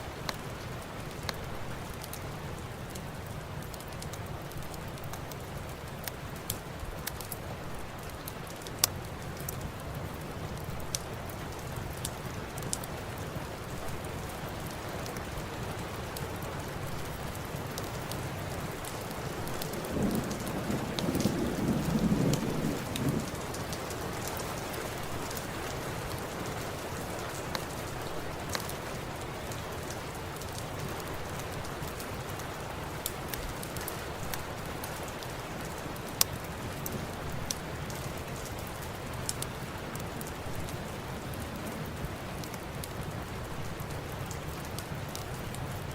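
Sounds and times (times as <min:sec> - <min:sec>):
fireplace crackling: 0:00.0 - 0:45.9
steady rain: 0:00.0 - 0:45.9
low rumble of thunder: 0:19.0 - 0:25.8, 0:36.5 - 0:38.4.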